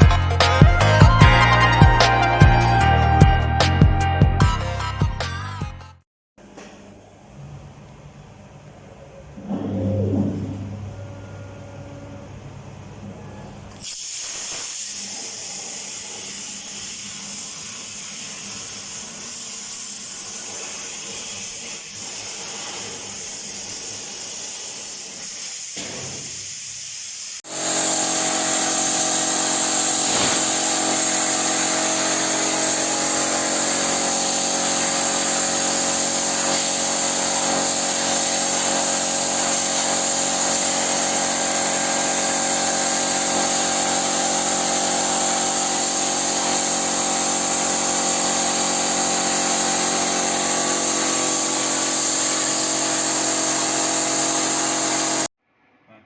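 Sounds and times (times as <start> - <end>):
plasma cutter hissing: 13.8 - 55.3.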